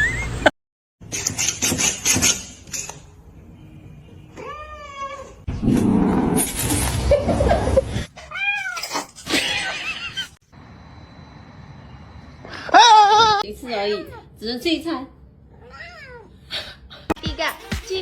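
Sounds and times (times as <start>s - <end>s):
cat meowing: 4.3s - 5.4s, 8.2s - 8.9s, 15.5s - 16.4s
clatter and rustling: 8.6s - 9.7s.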